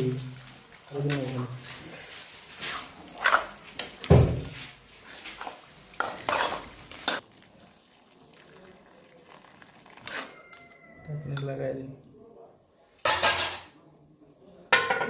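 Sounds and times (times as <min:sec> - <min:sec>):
metal pots clattering and scraping: 0:00.0 - 0:07.2, 0:09.7 - 0:10.6, 0:13.0 - 0:13.7.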